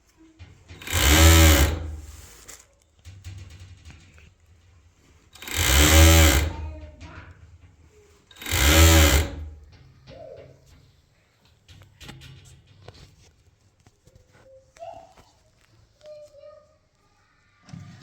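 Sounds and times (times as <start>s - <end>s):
sewing machine motor running: 0.8s - 2.2s, 5.4s - 6.8s, 8.3s - 9.7s.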